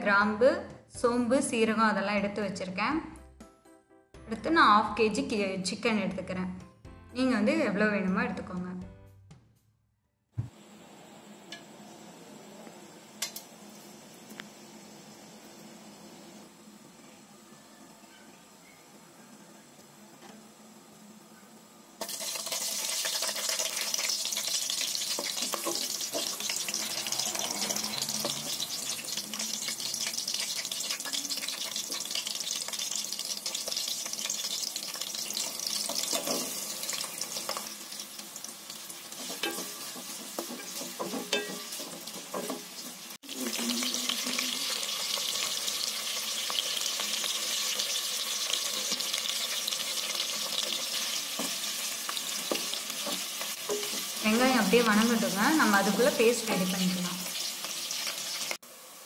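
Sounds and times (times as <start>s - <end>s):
food sizzling in oil: 10.4s - 19.1s, 20.4s - 59.0s
ladle stirring: 38.9s - 43.0s.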